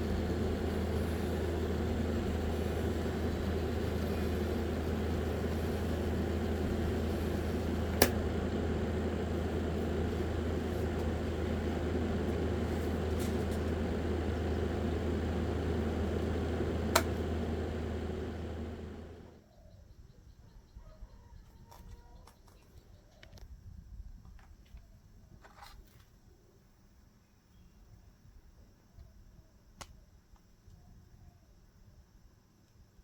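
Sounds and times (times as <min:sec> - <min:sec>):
small electric fan motor humming: 0:00.0 - 0:19.4
sharp clicks: 0:01.5 - 0:19.3.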